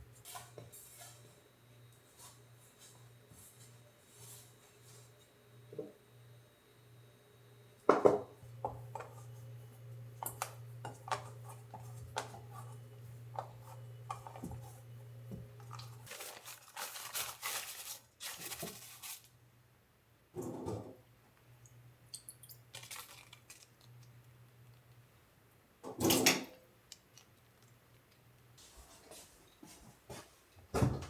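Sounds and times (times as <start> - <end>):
crunchy rustling: 15.7 - 19.3.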